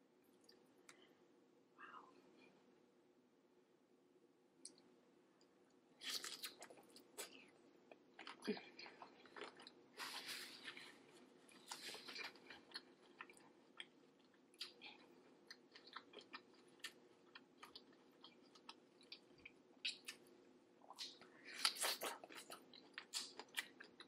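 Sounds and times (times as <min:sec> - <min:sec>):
faint steady hum: 0:00.0 - 0:24.0
chewing with wet mouth clicks: 0:11.6 - 0:24.0.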